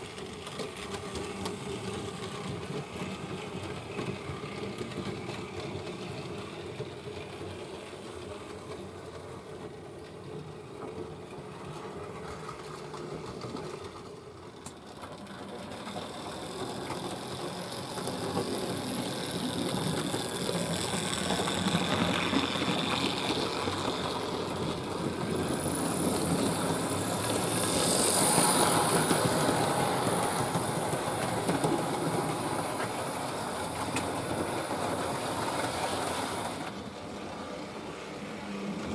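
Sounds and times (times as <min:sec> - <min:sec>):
wheels clattering over rails: 0:00.0 - 0:37.2
model train motor humming: 0:11.6 - 0:38.9.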